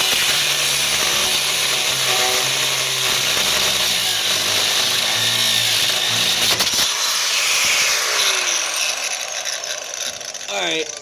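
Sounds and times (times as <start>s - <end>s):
angle grinder cutting steel: 0.0s - 11.0s.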